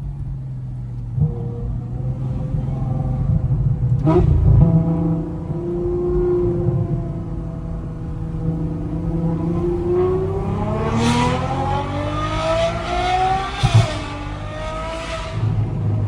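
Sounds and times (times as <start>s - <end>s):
car engine accelerating hard: 0.0s - 16.0s
loud thump: 4.1s - 7.0s.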